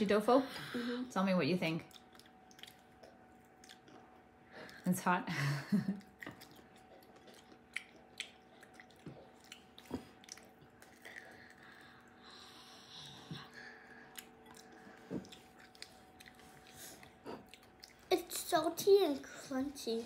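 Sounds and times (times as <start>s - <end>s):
crunchy food chewing: 1.9s - 4.8s, 6.0s - 18.4s.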